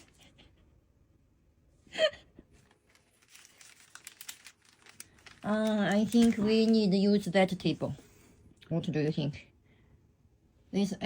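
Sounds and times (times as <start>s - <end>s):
plastic packaging crinkling: 2.6s - 7.5s.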